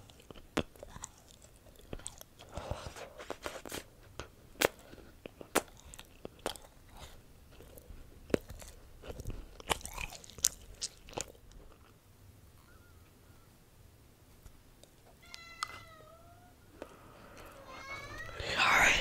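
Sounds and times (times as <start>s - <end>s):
chewing and crunching chocolate: 0.0s - 12.7s.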